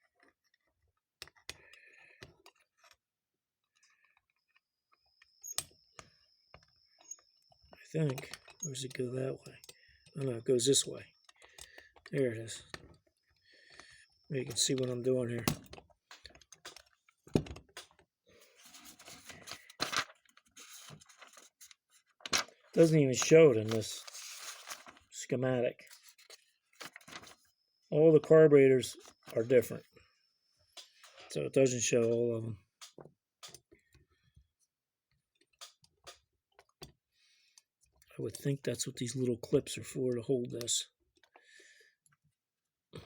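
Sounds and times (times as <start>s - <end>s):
light scraping and handling: 18.4s - 25.1s.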